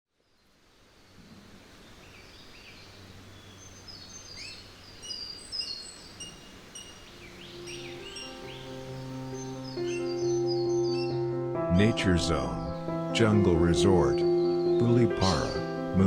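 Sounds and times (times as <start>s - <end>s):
birds chirping and whistling: 1.8s - 15.8s
steady music tones: 6.2s - 16.0s.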